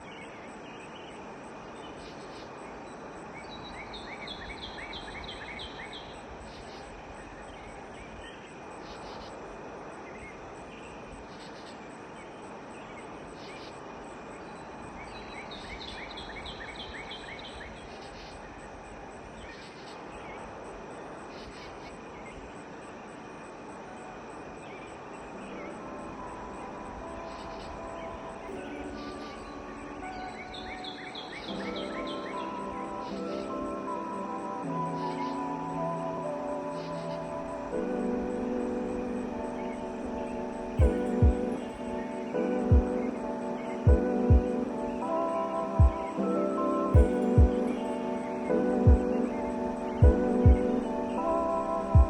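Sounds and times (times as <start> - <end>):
bird chirping: 0.0 - 52.0
steady rushing hiss: 0.0 - 52.0
high faintly pulsing tone: 22.2 - 52.0.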